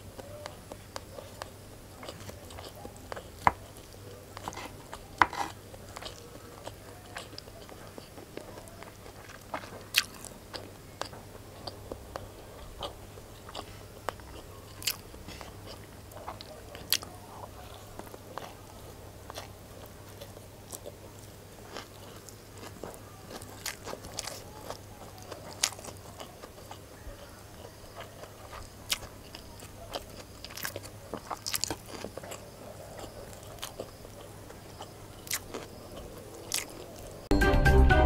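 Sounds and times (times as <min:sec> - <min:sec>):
chewing food: 0:00.0 - 0:37.3
loud music: 0:37.3 - 0:38.0.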